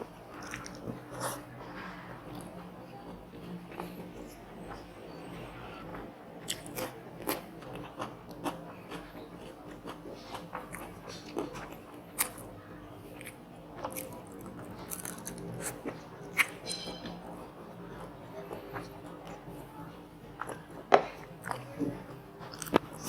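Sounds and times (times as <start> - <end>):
person chewing crunchy food: 0.3 - 1.4, 5.9 - 12.5, 13.1 - 16.7, 20.4 - 21.7, 22.5 - 23.0.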